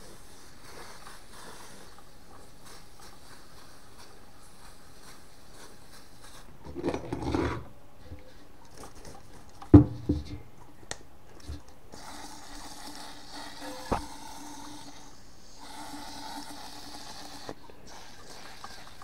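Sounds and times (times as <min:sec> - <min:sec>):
metal tin scraping: 0:06.6 - 0:07.7.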